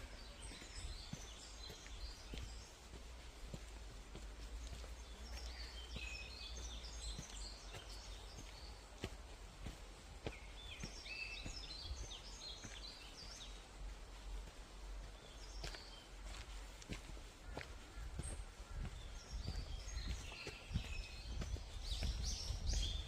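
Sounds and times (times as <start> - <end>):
small songbird singing: 0.0 - 9.3, 10.2 - 13.9, 17.9 - 23.0.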